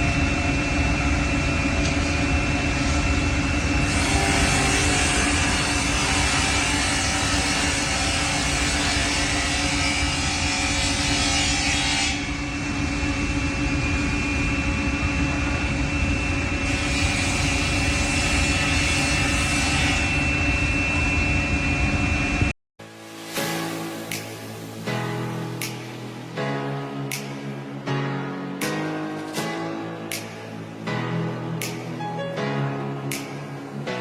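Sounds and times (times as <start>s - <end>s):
machine motors humming and whining: 0.0s - 22.5s.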